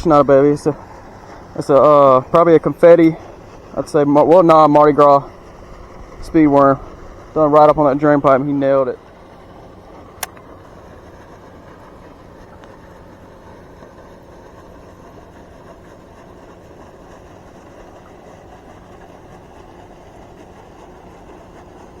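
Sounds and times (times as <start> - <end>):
small motor humming: 0.0 - 22.0
sharp click: 10.2 - 10.5.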